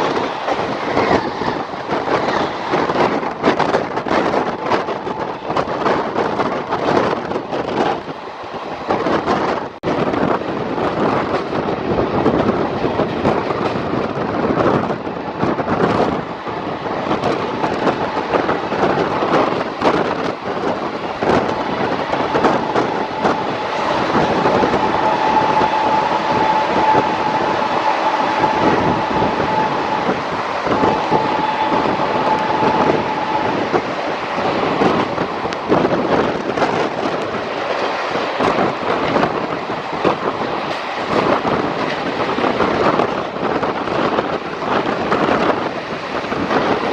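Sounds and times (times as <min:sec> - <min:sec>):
diesel locomotives chugging: 0:00.0 - 0:46.9
steady high tone: 0:20.9 - 0:36.4.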